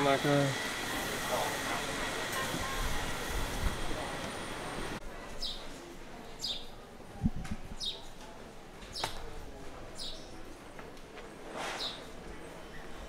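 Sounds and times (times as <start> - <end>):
crowd voices outdoors: 0.0 - 13.0.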